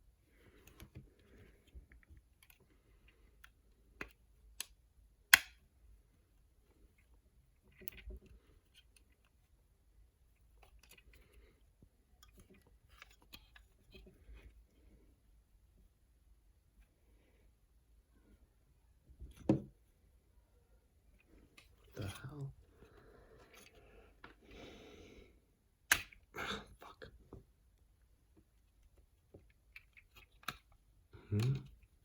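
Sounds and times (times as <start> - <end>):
sharp plastic clicks: 4.0 - 5.6.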